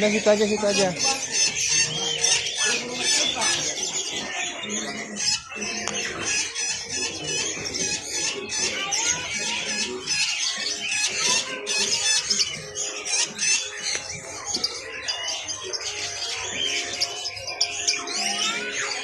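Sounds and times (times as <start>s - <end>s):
caged birds chirping and squawking: 0.0s - 19.0s.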